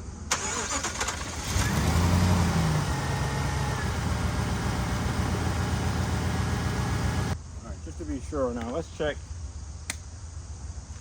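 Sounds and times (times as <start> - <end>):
car engine starting and idling: 0.3 - 7.4.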